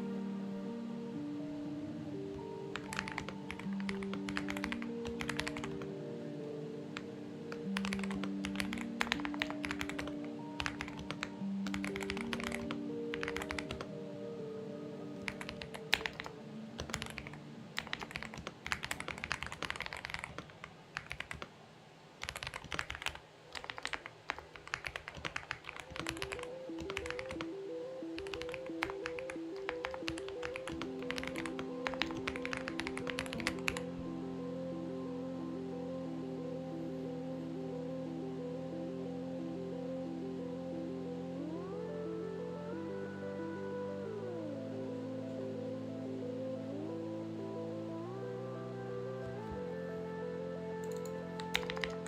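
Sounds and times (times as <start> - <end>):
background music with held notes: 0.0 - 19.8, 25.8 - 52.0
mechanical keyboard keystroke clacks: 15.3 - 21.5, 22.2 - 27.4.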